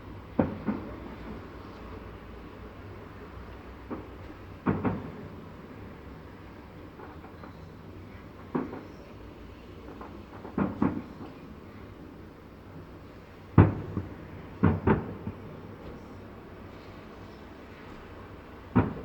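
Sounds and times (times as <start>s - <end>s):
distant fireworks booming: 0.3s - 1.6s, 3.9s - 5.9s, 9.9s - 11.6s, 13.5s - 16.7s, 18.0s - 19.0s.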